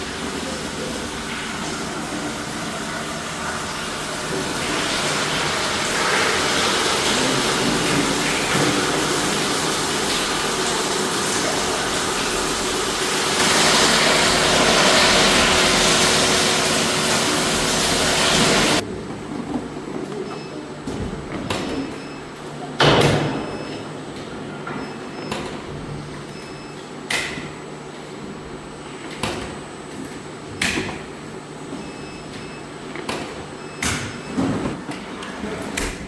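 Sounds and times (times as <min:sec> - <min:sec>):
rushing hissing machinery: 0:00.0 - 0:18.8.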